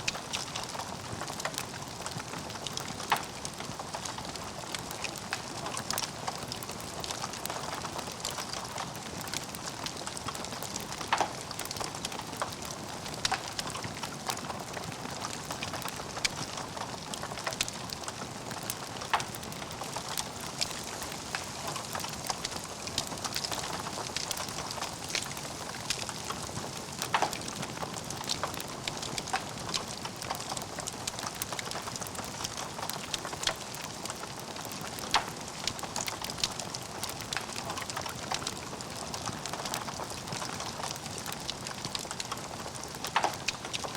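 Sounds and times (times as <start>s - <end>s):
logs crackling in fireplace: 0.0s - 43.9s
sharp pops of burning wood: 14.8s - 38.5s.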